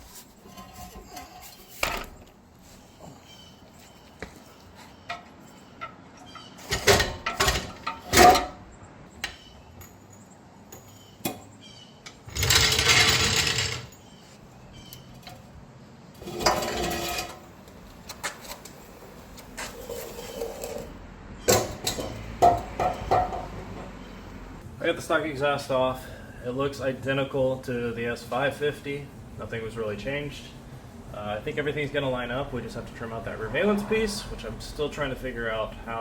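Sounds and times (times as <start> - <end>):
metal knocks and clanks: 5.0 - 8.6, 21.5 - 24.0.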